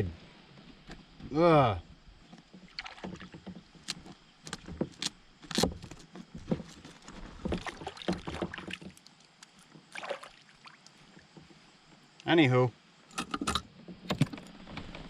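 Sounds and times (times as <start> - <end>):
fishing gear clicking and knocking: 3.0 - 9.8, 13.1 - 14.6.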